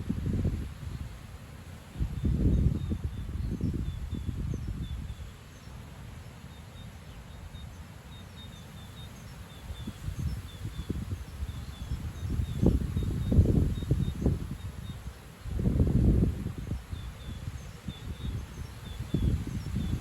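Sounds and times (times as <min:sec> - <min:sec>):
wind buffeting microphone: 0:00.0 - 0:01.2, 0:01.9 - 0:05.3, 0:09.7 - 0:20.0
gusty wind through trees: 0:00.0 - 0:20.0
birds chirping faintly: 0:02.0 - 0:20.0.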